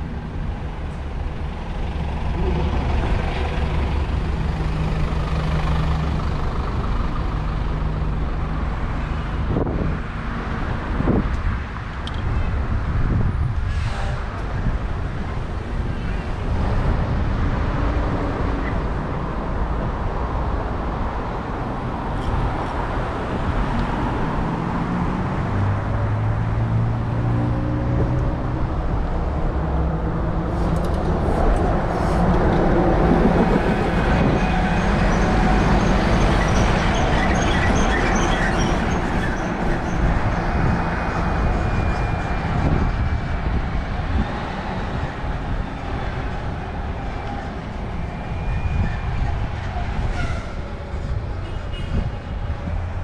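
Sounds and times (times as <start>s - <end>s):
passing vehicle engine hum: 0.0s - 53.0s
road traffic: 0.0s - 53.0s
wind on microphone: 9.3s - 27.2s, 27.8s - 37.8s, 38.8s - 53.0s.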